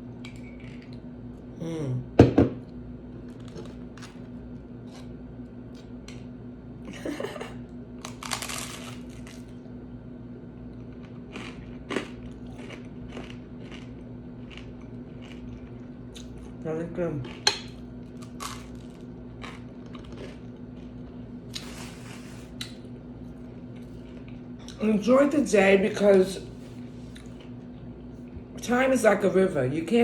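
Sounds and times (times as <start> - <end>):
steady low hum: 0.0 - 30.0
dish knock: 2.2 - 2.6
scraping or crunching: 8.0 - 9.5.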